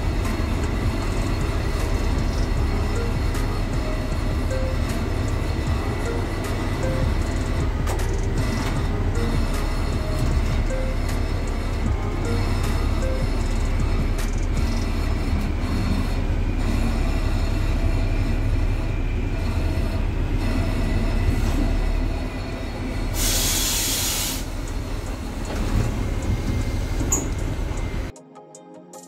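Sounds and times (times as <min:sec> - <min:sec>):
train wheels rumbling on rails: 0:00.0 - 0:28.1
burst of hiss: 0:23.2 - 0:24.5.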